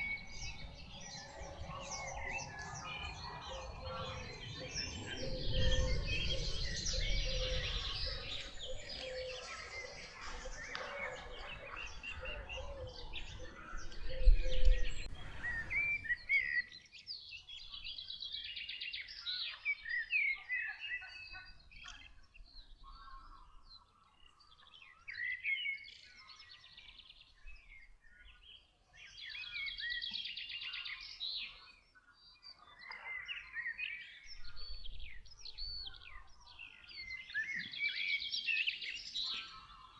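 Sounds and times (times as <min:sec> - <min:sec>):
songbirds singing and chirping: 0:00.0 - 0:39.9
low rumble: 0:10.1 - 0:16.3.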